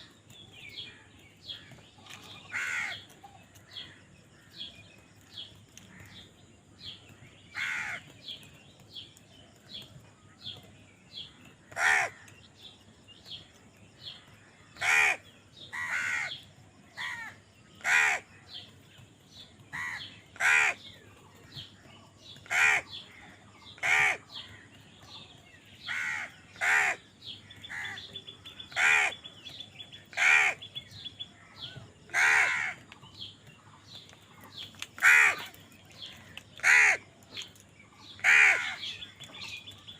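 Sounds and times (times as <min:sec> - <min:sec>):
crows cawing: 0:01.5 - 0:04.5, 0:07.5 - 0:08.1, 0:11.6 - 0:12.4, 0:14.7 - 0:16.4, 0:17.0 - 0:18.3, 0:19.7 - 0:20.9, 0:22.4 - 0:24.7, 0:25.8 - 0:29.3, 0:30.1 - 0:30.7, 0:32.1 - 0:32.9, 0:35.0 - 0:37.0, 0:38.2 - 0:39.0.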